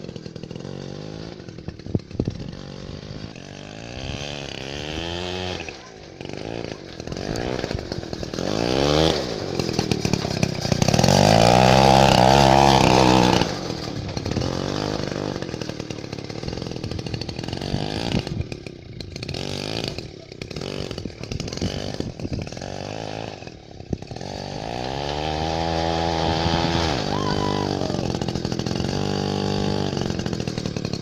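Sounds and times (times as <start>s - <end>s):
chainsaw engine revving: 0.0s - 31.0s.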